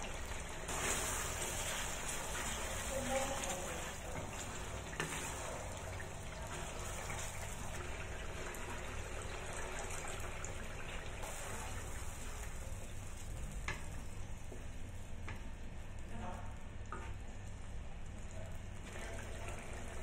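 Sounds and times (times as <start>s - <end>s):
water poured into wok: 0.0s - 12.8s, 18.8s - 20.0s
chilli paste sizzling in oil: 0.1s - 20.0s.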